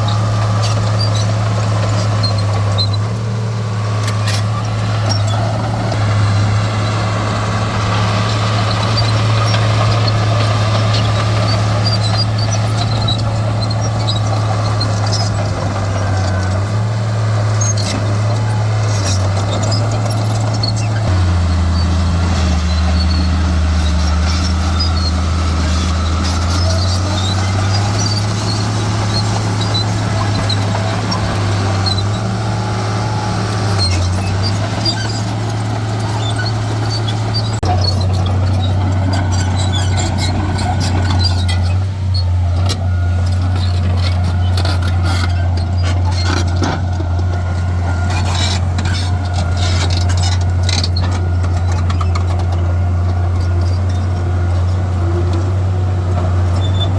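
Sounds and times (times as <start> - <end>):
diesel engine of heavy machinery: 0.0 - 56.9
faint high squeaks: 21.7 - 56.9.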